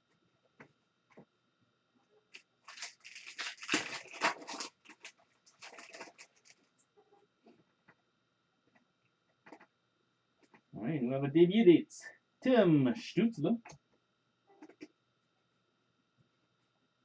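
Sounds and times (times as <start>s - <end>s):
foil wrapper crinkling and tearing: 2.3s - 6.8s.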